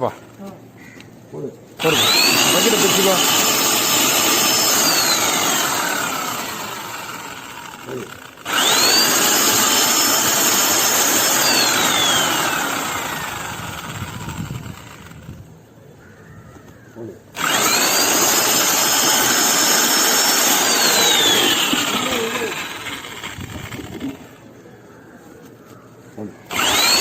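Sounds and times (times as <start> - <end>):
electric drill mixer whining: 1.8 - 15.4, 17.4 - 24.4, 26.5 - 27.0.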